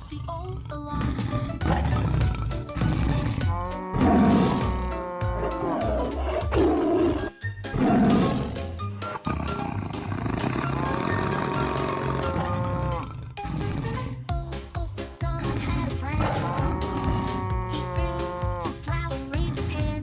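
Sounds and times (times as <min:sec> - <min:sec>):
roar-like growls: 0:00.0 - 0:14.0, 0:15.7 - 0:18.7
upbeat children's dance song: 0:00.9 - 0:07.8, 0:08.5 - 0:20.0.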